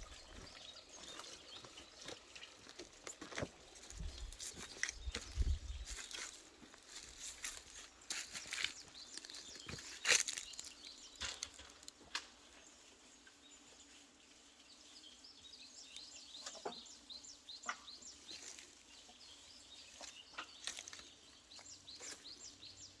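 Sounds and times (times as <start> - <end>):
small birds chirping: 0.0 - 23.0
rustling: 3.2 - 13.2.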